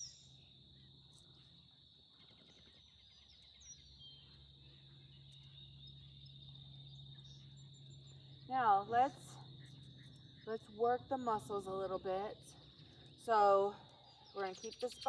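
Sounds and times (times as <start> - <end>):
faint bird chirps: 0.0 - 10.8, 12.5 - 15.0
high-pitched insect trill: 0.0 - 11.7
low steady hum: 0.0 - 15.0.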